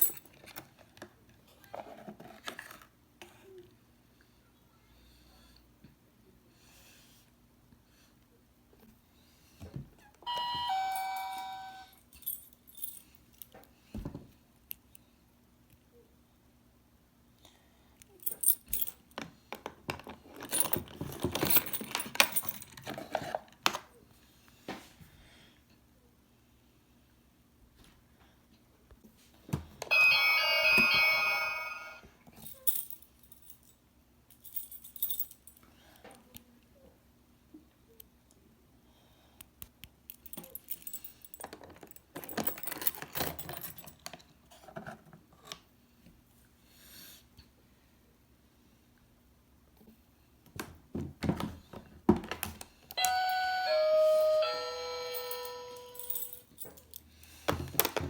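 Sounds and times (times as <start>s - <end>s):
toy keys clicking and jangling: 11.3s - 13.6s, 18.1s - 19.0s, 20.4s - 22.9s, 32.4s - 33.7s, 34.4s - 35.6s, 40.1s - 44.1s, 55.0s - 57.1s.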